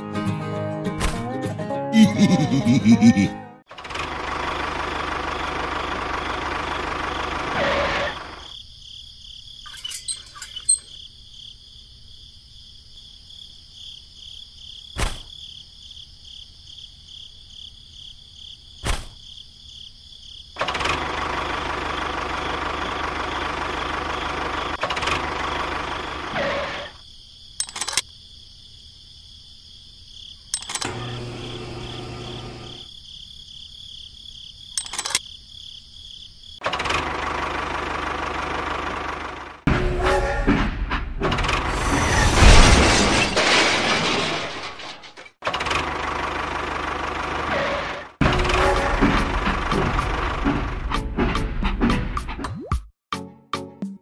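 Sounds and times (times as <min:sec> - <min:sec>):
sharp clicks and knocks: 0:27.6 - 0:28.0.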